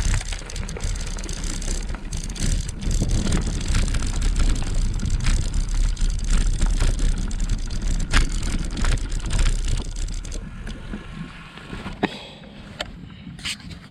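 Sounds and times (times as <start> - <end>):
bike rattling clicks: 0.0 - 10.8
wind buffeting microphone: 0.0 - 12.0
tyre and road rumble: 0.0 - 13.8.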